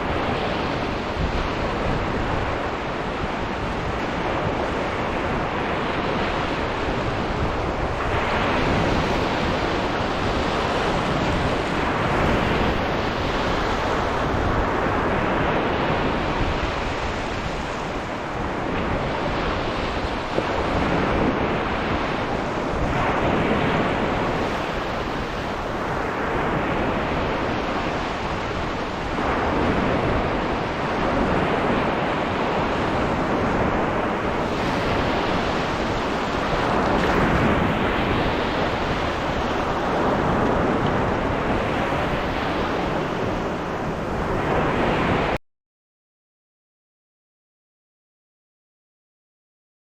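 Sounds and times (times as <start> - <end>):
waves washing onto beach: 0.0 - 45.4
wind rumbling on microphone: 0.0 - 45.4.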